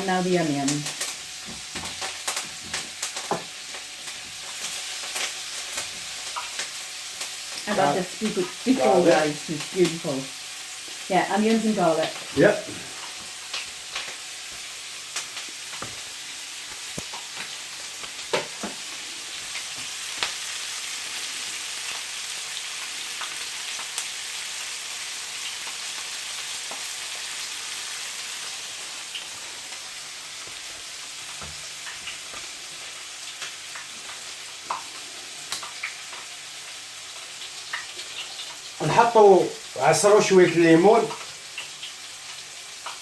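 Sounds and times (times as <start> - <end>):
chicken sizzling in a pan: 0.0 - 43.0.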